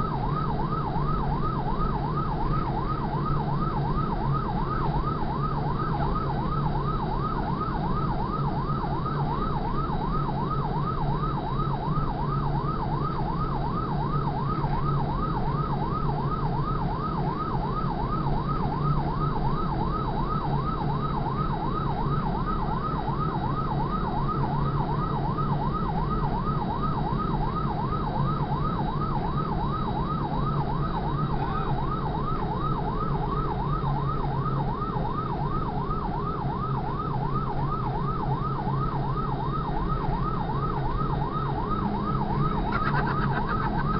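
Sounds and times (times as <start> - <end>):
fire engine siren yelping: 0.0 - 43.9
truck engine drone: 22.7 - 43.9.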